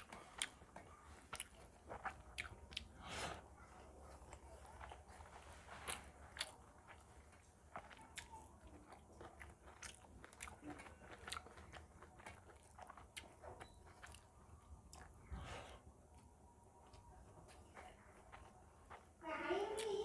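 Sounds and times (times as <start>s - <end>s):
wet chewing mouth clicks: 0.0s - 3.0s, 4.3s - 15.4s.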